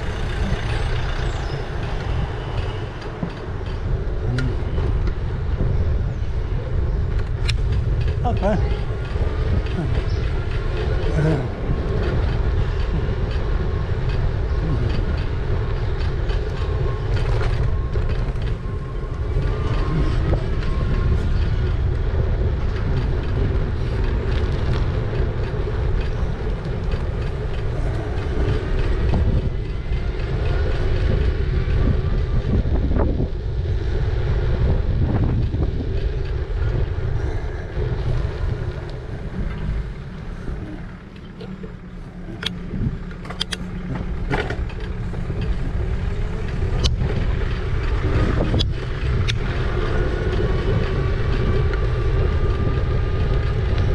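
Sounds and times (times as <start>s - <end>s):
tyre and road noise: 0.0s - 53.9s
wind rumble on microphone: 0.0s - 53.9s
rattles from bumps: 34.4s - 53.9s.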